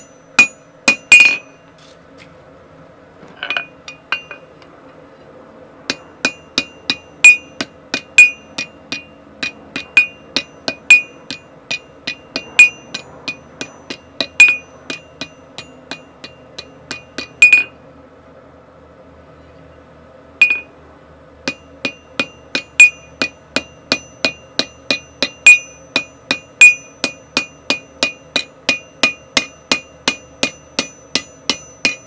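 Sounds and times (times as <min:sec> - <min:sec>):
hammer striking steel on anvil: 0:00.0 - 0:01.6, 0:03.4 - 0:04.5, 0:05.9 - 0:17.8, 0:20.4 - 0:20.8, 0:21.4 - 0:32.0.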